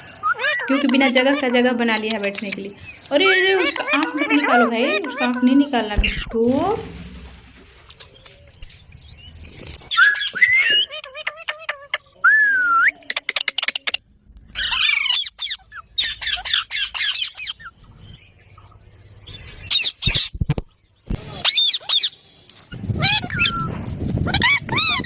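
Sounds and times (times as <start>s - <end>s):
parrots whistling: 0.0s - 1.6s, 9.7s - 14.0s
parrots squawking: 0.0s - 8.4s, 9.9s - 12.2s, 13.1s - 17.8s, 21.3s - 23.7s
parrots clicking chatter: 0.0s - 12.2s, 13.0s - 17.7s.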